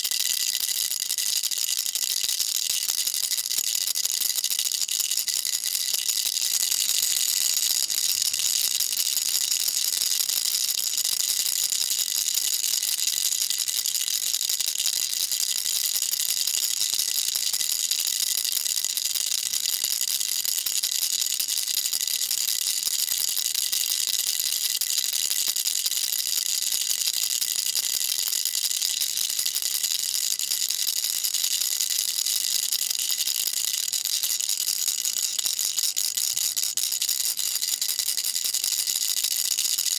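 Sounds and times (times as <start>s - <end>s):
baby rattle shaking: 0.0s - 17.5s.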